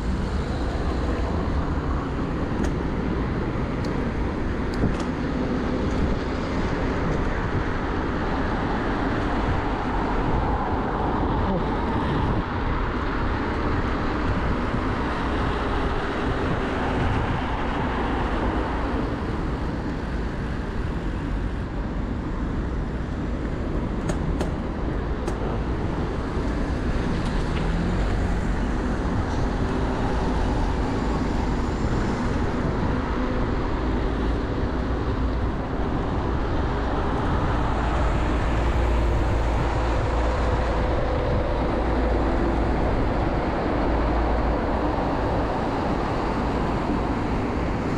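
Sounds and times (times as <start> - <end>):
road traffic passing: 0.0 - 47.9
wind rushing over microphone: 0.0 - 47.9.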